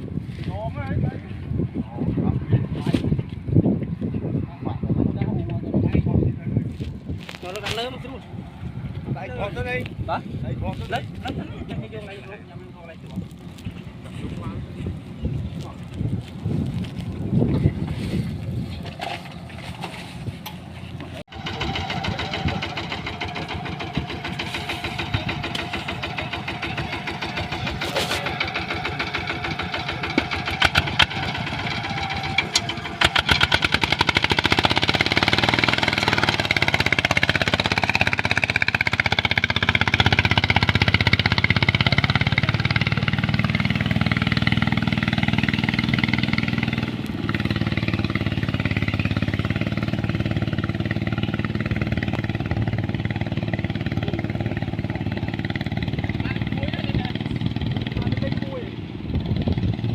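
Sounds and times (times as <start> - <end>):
small engine running: 21.3 - 59.9.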